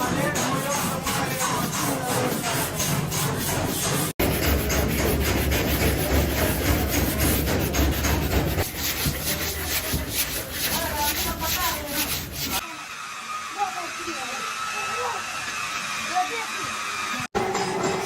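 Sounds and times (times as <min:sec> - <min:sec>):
sanding on car body panel: 0:00.0 - 0:12.6.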